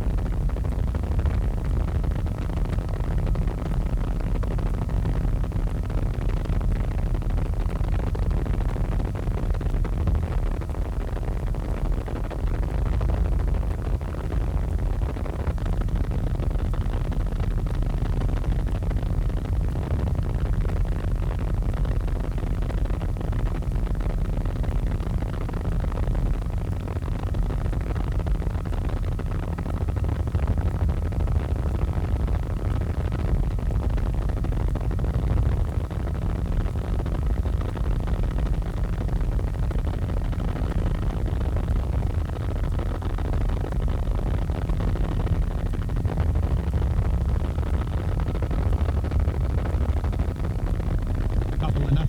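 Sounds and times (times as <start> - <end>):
helicopter engine and rotor rumble: 51.1 - 52.0.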